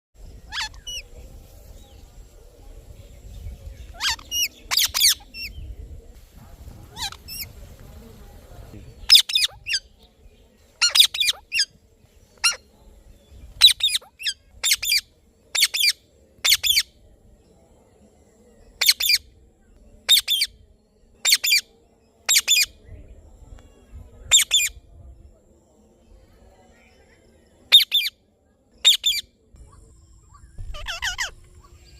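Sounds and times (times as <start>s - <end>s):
parrot squawking: 0.5s - 1.0s, 4.0s - 5.2s, 30.7s - 31.4s.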